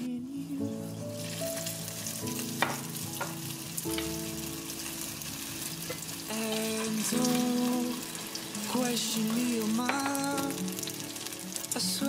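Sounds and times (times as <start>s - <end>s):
background music: 0.0s - 12.0s
corn sizzling in hot oil: 1.2s - 12.0s.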